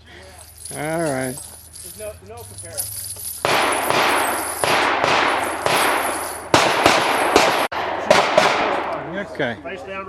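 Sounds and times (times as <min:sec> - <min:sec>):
echoing pistol shots: 0:03.4 - 0:08.8.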